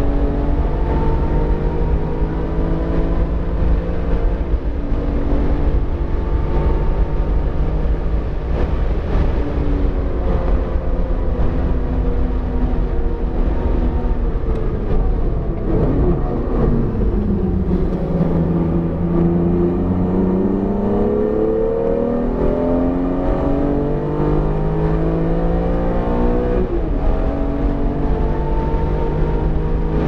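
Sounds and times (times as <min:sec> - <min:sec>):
car engine accelerating: 0:00.0 - 0:30.0.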